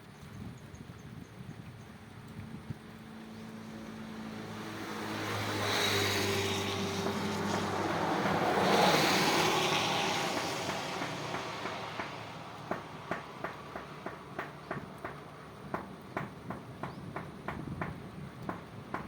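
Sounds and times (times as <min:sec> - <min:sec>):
motor vehicle passing by: 0:02.8 - 0:15.7.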